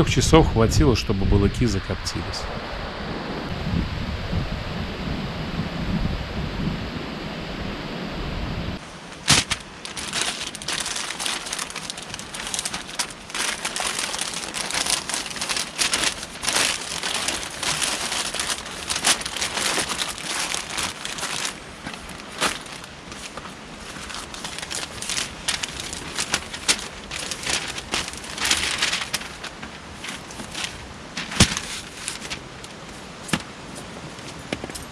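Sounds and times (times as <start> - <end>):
wind buffeting microphone: 0.0 - 8.9
irregular crackles and rustles: 8.8 - 34.9.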